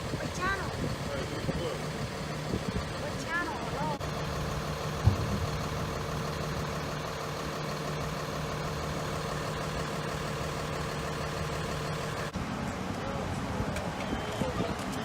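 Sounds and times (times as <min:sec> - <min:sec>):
vehicle engine idling: 0:00.0 - 0:15.0
short thump: 0:05.0 - 0:05.7.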